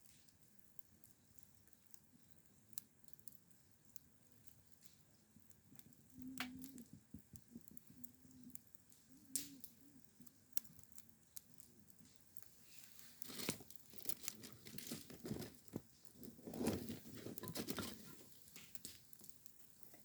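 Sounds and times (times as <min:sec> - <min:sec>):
crinkling and tearing: 0:10.6 - 0:20.0.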